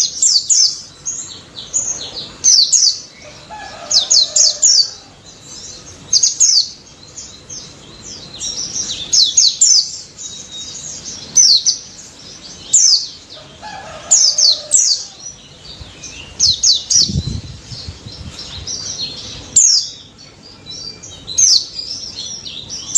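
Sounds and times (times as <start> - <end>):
low rumble: 15.7 - 19.6.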